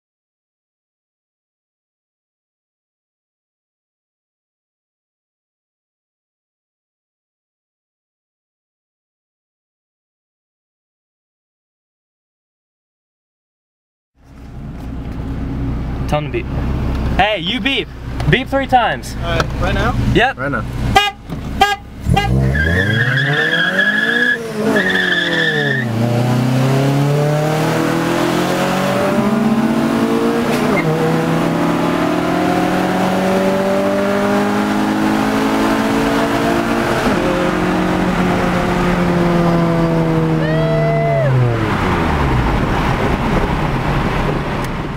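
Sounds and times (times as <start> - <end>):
car engine accelerating: 14.2 - 44.9
tyres squealing: 22.1 - 25.9.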